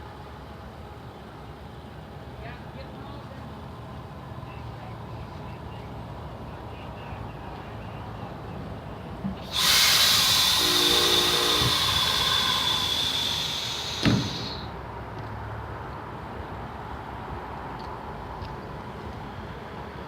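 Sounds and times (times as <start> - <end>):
train low rumble: 0.0 - 20.0
compressed air hissing: 9.4 - 14.7.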